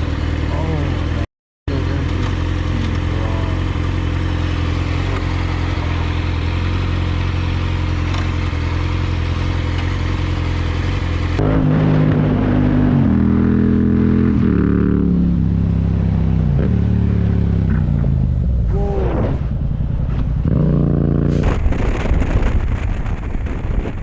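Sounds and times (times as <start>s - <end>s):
motorcycle engine running: 0.0s - 21.6s
wind noise: 21.3s - 24.0s.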